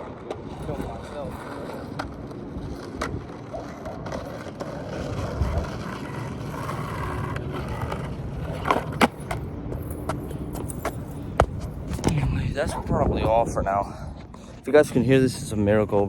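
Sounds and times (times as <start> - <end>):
skateboard clacks: 0.0 - 12.2
skateboard wheels rolling: 0.0 - 16.0.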